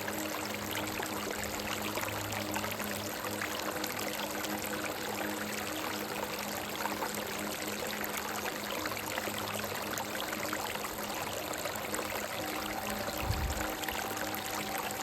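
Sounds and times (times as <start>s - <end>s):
soft sustained music notes: 0.0s - 15.0s
low rumble: 13.1s - 14.0s.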